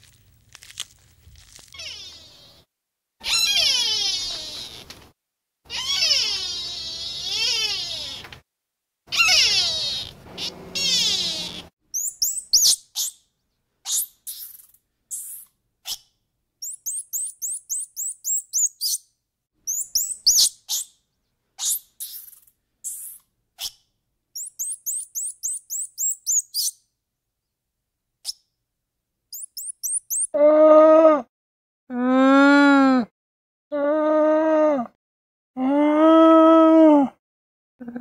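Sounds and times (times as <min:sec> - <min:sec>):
animal call with sliding pitch: 0:03.2 - 0:04.8, 0:05.7 - 0:08.2, 0:09.1 - 0:11.7
bird chirps in quick trills: 0:29.4 - 0:30.3.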